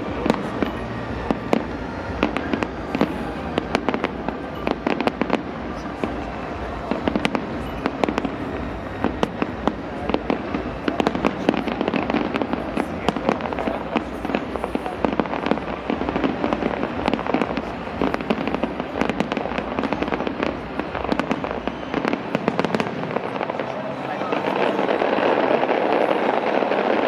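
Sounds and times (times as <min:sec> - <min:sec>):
fireworks and firecrackers banging: 0:00.0 - 0:27.0
steady background din: 0:00.0 - 0:27.0.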